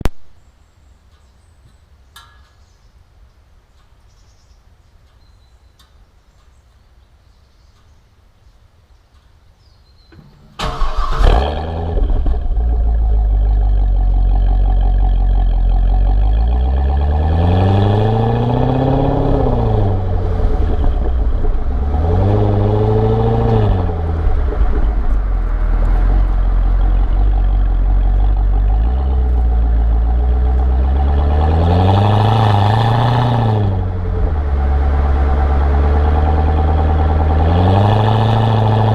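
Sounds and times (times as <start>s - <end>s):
faint outdoor background: 0.0s - 38.9s
car engine starting and revving: 10.3s - 38.9s.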